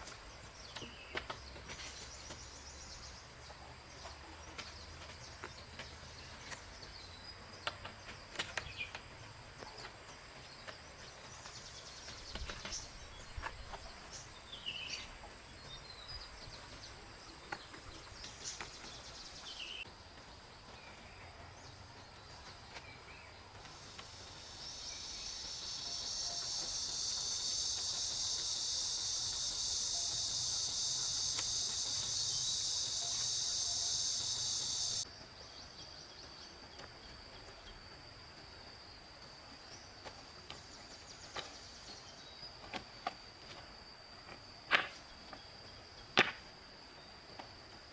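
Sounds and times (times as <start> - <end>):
high-pitched insect drone: 23.8 - 35.1.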